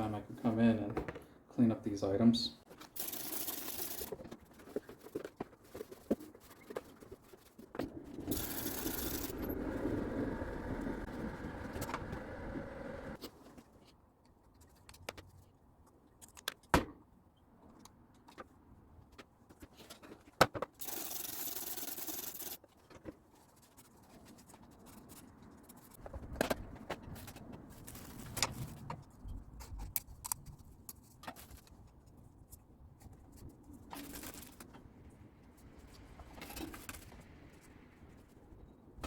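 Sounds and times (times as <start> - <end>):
metal parts clinking and knocking: 8.3 - 9.4.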